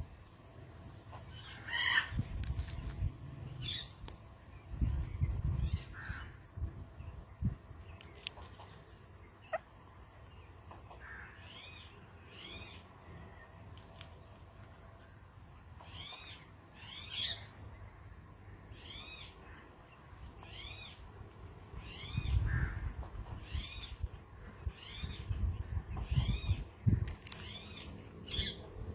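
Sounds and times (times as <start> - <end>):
parakeet calling: 1.1 - 2.2, 27.4 - 28.6.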